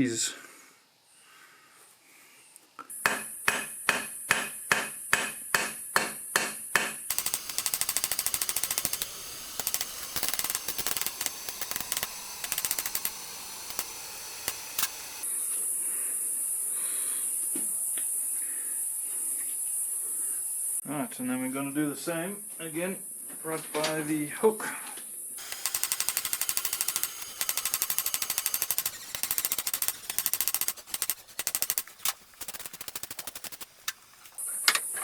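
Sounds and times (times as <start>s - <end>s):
hammer striking iron on anvil: 3.0s - 7.4s
crickets chirring: 7.1s - 21.0s, 25.2s - 35.0s.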